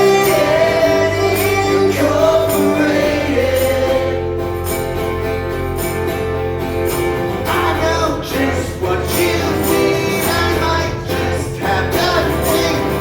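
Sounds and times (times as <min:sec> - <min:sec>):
person singing: 0:00.0 - 0:04.4, 0:07.5 - 0:13.0
acoustic guitars: 0:00.0 - 0:13.0.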